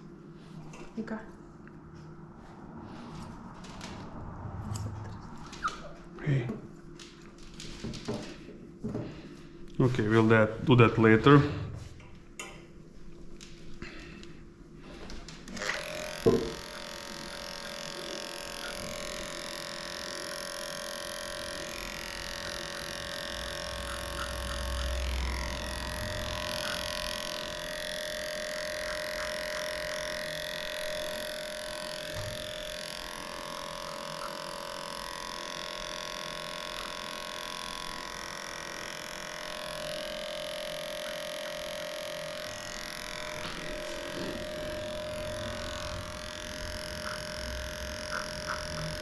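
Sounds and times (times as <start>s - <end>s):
electric clippers humming: 9.0s - 11.8s, 13.2s - 49.0s.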